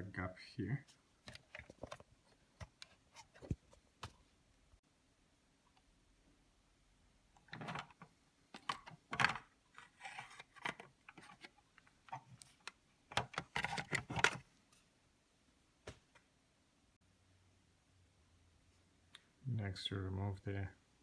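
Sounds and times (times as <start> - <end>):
plastic housing clicking and rattling: 7.4 - 11.5, 12.1 - 14.4.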